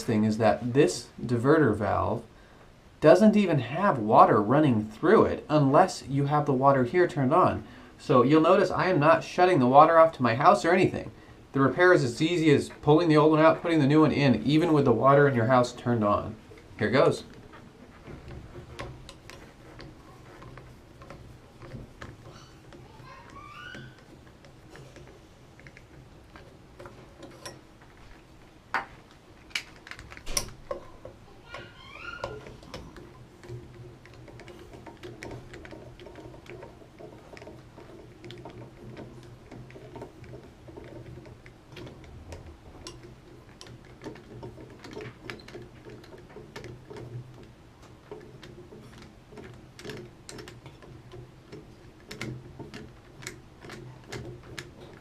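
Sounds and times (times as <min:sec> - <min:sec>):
hand tools clicking on metal: 0:12.1 - 0:55.0.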